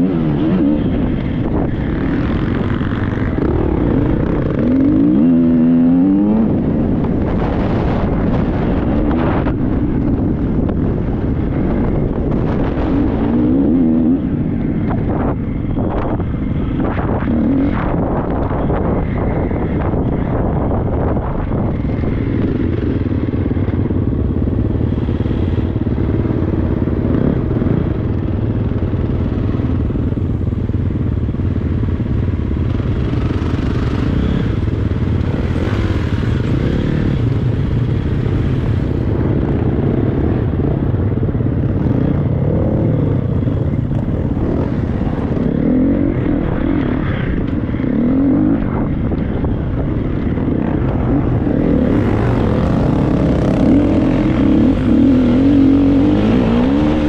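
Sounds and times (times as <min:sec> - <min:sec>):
motocross bike engine revving: 0:00.0 - 0:09.4, 0:32.7 - 0:40.9, 0:50.4 - 0:57.0.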